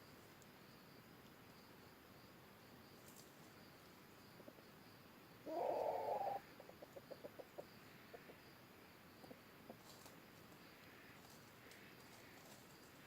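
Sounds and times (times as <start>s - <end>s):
junglefowl call: 5.4s - 8.4s
junglefowl clucks: 5.4s - 8.5s.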